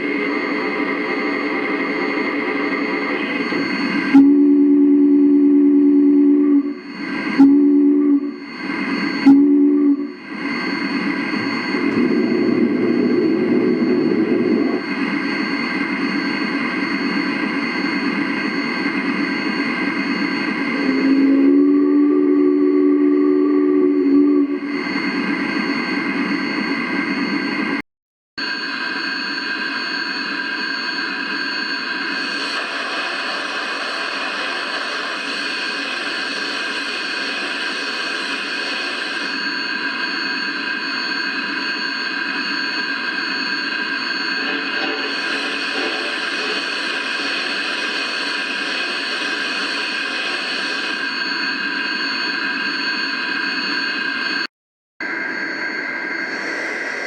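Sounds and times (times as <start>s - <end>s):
high whining tones: 0.0s - 27.8s, 28.4s - 57.0s
model steam locomotive hiss: 45.0s - 48.0s.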